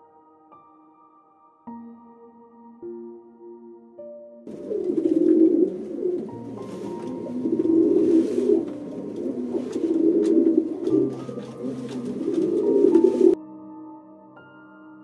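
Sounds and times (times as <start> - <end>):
soft background music: 0.0 - 15.0
bird cooing: 4.5 - 13.4.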